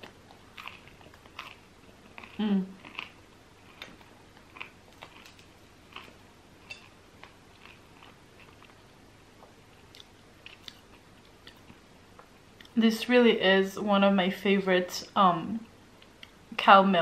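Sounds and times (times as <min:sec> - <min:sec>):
wet mouth clicks of chewing: 0:09.4 - 0:12.8.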